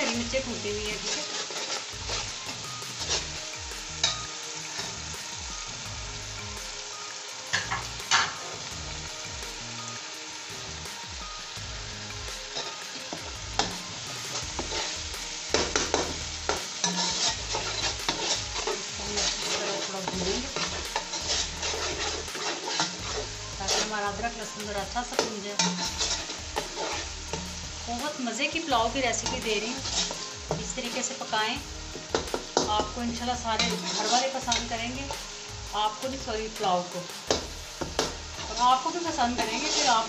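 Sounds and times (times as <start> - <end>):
paste sizzling in hot oil: 0.0 - 40.0
spoon scraping and knocking pot: 20.5 - 23.9.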